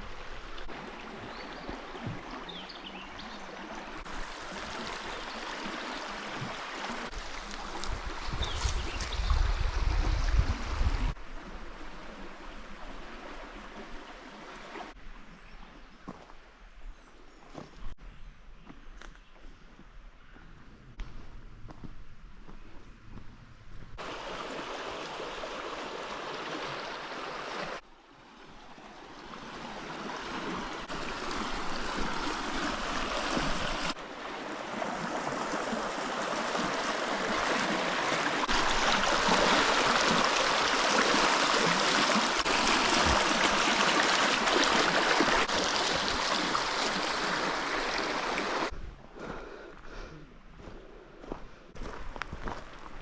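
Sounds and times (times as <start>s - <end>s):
stream water rushing: 0.0s - 15.0s, 24.0s - 48.7s.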